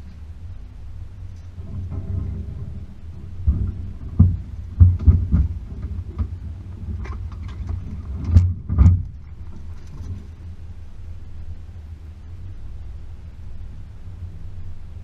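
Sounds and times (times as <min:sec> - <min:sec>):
car engine humming: 0:00.0 - 0:15.0
heavy thumps and knocks: 0:01.6 - 0:10.3.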